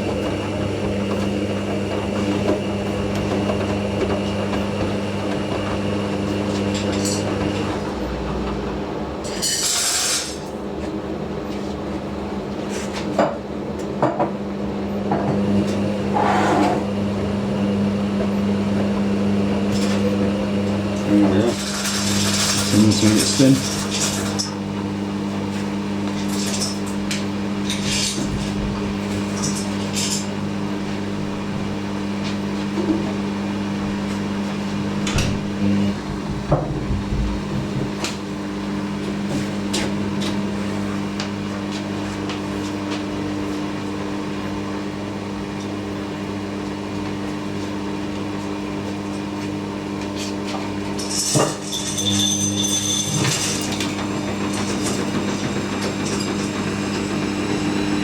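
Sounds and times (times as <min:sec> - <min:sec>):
drain pump humming: 0:00.0 - 0:12.6, 0:13.2 - 0:58.0
high motor whine: 0:14.9 - 0:41.8, 0:51.0 - 0:58.0
washing machine drum knocks: 0:30.9 - 0:38.8.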